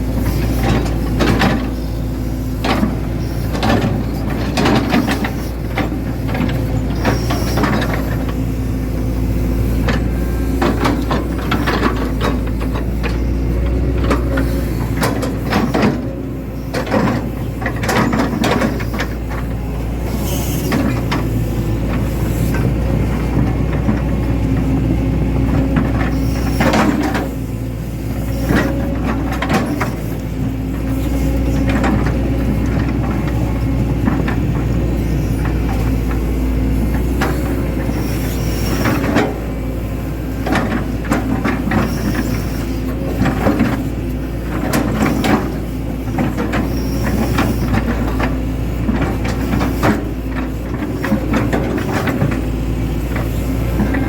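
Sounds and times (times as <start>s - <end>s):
excavator diesel engine running: 0.0s - 54.0s
machine knocks and clanks: 0.2s - 1.8s, 2.6s - 8.5s.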